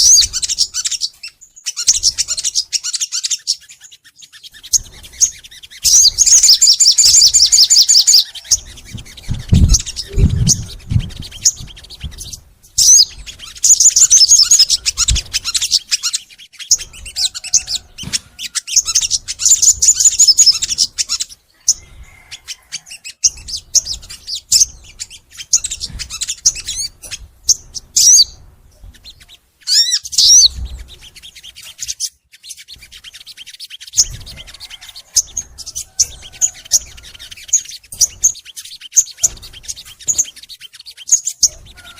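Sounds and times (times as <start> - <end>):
songbird singing trills: 0.0 - 41.9
low thumps: 8.6 - 13.6.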